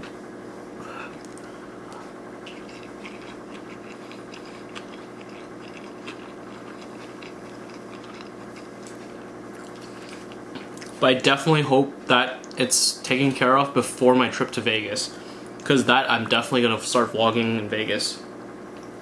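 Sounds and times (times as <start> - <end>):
steady low hum: 0.0 - 19.0
person chewing: 1.0 - 11.0
wet mouth clicks: 2.4 - 10.9.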